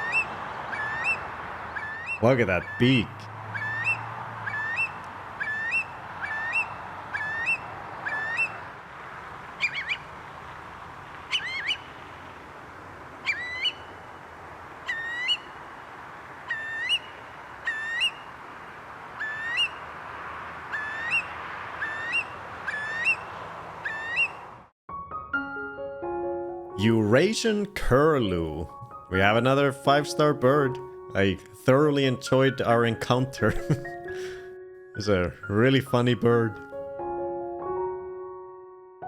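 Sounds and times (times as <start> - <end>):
curlew calling: 0.0 - 8.8, 9.6 - 10.2, 11.1 - 12.5, 13.1 - 24.6.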